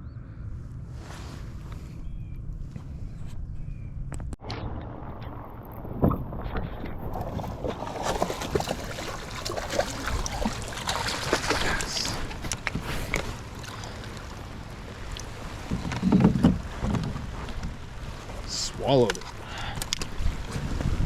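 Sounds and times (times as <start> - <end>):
water: 4.1 - 21.0
wind noise on microphone: 19.7 - 21.0.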